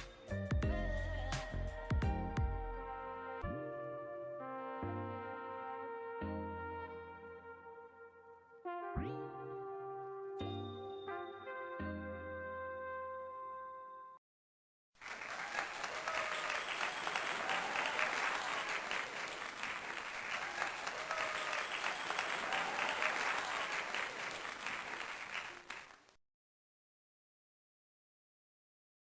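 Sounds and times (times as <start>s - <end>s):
crowd applauding: 15.0s - 26.2s.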